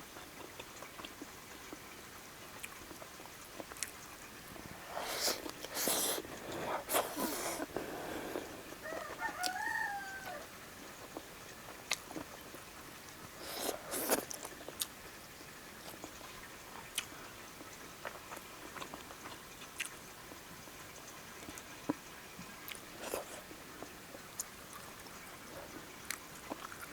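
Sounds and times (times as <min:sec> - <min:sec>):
person chewing food: 0:00.2 - 0:01.3, 0:02.6 - 0:10.4, 0:11.0 - 0:12.6, 0:13.2 - 0:15.0, 0:15.8 - 0:20.0, 0:22.6 - 0:26.9
rooster crowing: 0:08.4 - 0:10.6.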